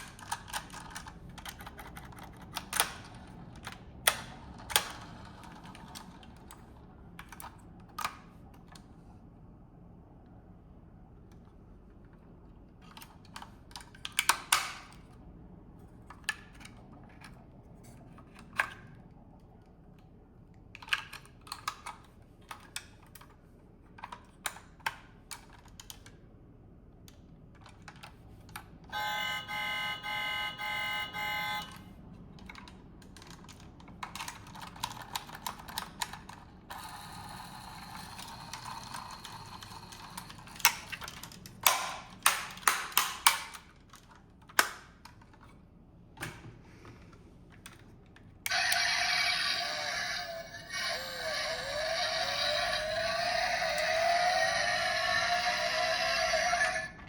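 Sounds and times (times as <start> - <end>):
small plastic and metal clicks: 40.0 - 45.6.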